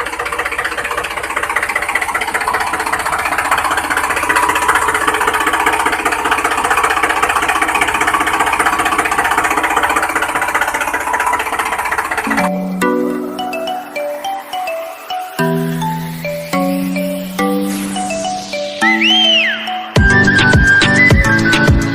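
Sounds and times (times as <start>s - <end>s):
engine knocking rattle: 0.0s - 14.3s, 20.0s - 21.9s
chiming music jingle: 12.3s - 20.3s.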